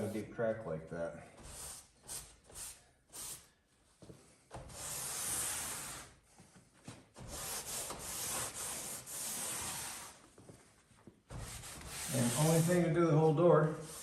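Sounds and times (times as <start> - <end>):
damp rag wiping seam: 7.2 - 10.3, 11.3 - 14.0.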